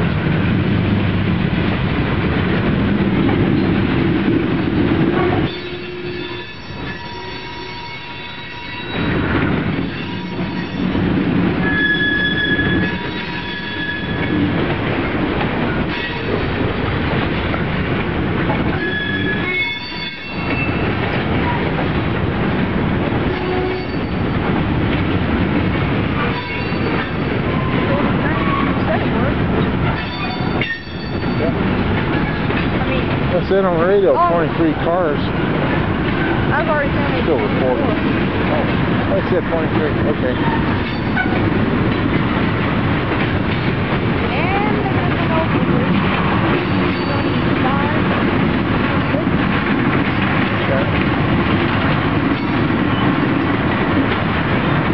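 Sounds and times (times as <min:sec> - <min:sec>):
freight train rumbling past: 0:00.0 - 0:54.9
train wheels squealing: 0:05.5 - 0:11.0, 0:11.6 - 0:14.4, 0:18.8 - 0:20.9, 0:23.7 - 0:24.3, 0:26.3 - 0:28.8, 0:30.0 - 0:31.6, 0:40.2 - 0:41.4, 0:46.6 - 0:47.4.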